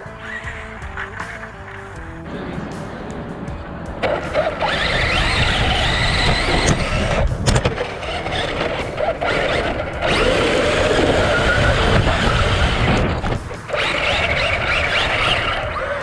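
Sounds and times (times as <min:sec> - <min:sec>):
electric rc car motor whining: 0:00.0 - 0:02.4, 0:04.0 - 0:16.0
rough running noise: 0:00.0 - 0:16.0
sharp clicks: 0:04.0 - 0:16.0.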